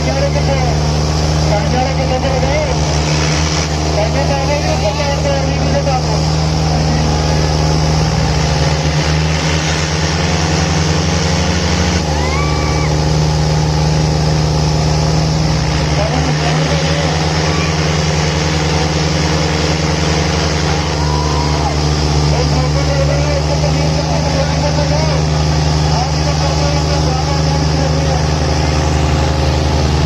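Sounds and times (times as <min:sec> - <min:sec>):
tractor engine droning under load: 0:00.0 - 0:30.0.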